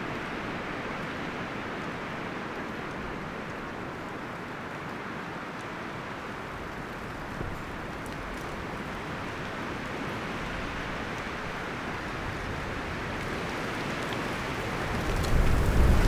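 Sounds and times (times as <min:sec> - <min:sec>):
wind rustling forest leaves: 0:03.2 - 0:16.0.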